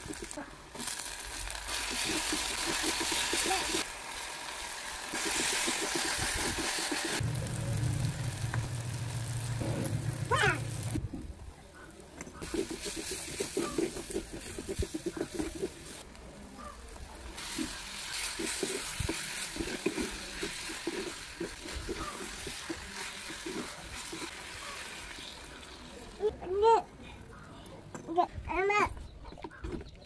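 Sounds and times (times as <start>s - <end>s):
masala sizzling in a pot: 0.0s - 11.0s, 11.8s - 26.3s
low engine-like hum: 7.2s - 11.0s
wooden spatula scraping a pot: 12.4s - 16.0s, 17.4s - 24.8s.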